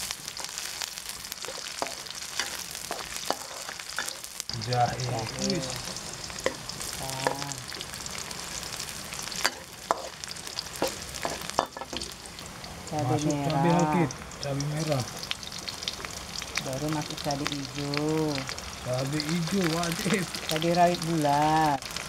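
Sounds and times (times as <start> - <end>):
food sizzling in oil: 0.0 - 22.0.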